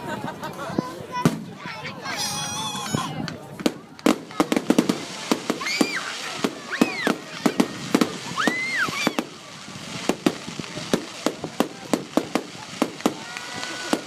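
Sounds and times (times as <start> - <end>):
fireworks cracks and pops: 3.1 - 14.0
firework whistles: 4.6 - 14.0.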